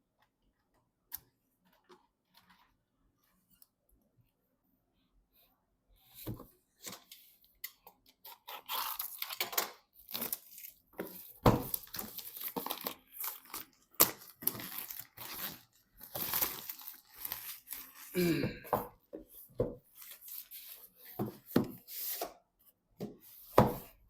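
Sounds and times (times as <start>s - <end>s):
packaging crinkling and tearing: 8.2s - 18.1s.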